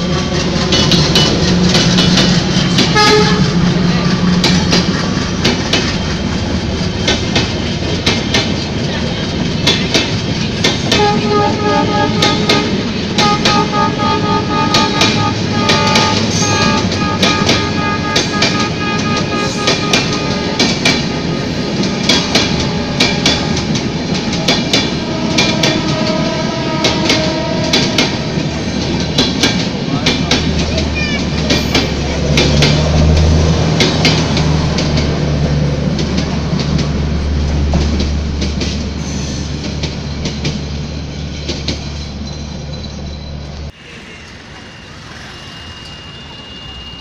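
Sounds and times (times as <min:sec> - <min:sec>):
train wheels rumbling on rail: 0:00.0 - 0:47.0
wheels clicking over rail joints: 0:26.8 - 0:42.4.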